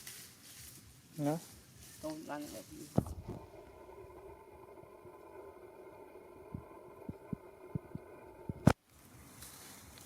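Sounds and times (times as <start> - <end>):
soft low thump: 3.0 - 3.5.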